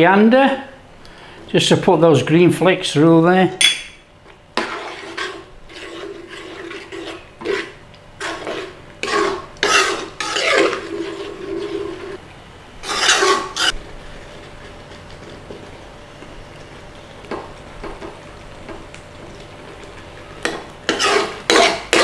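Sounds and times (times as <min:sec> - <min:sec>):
spoon stirring thick sauce in pan: 0:04.6 - 0:12.2, 0:12.8 - 0:22.0.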